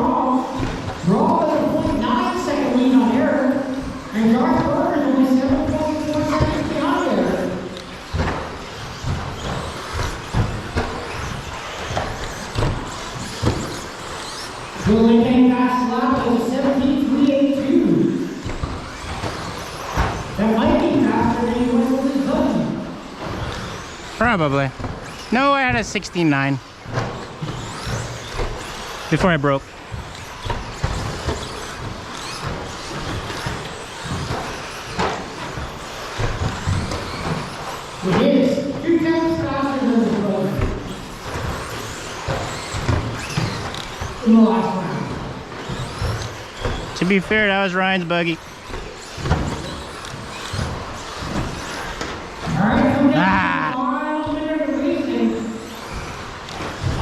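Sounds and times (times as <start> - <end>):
electric motors whining: 0.0 - 57.0
tyre noise: 26.8 - 57.0.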